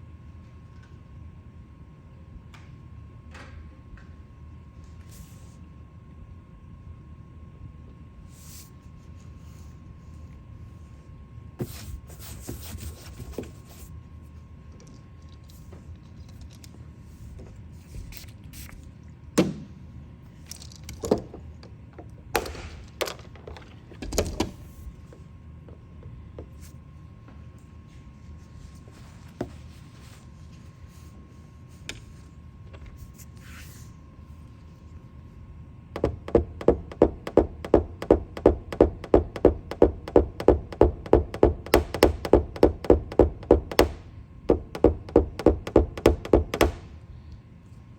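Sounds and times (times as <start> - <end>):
faint hum: 0.0 - 47.9
knocks and clicks on metal panel: 36.0 - 46.9
rapid tapping on metal panel: 36.0 - 46.9.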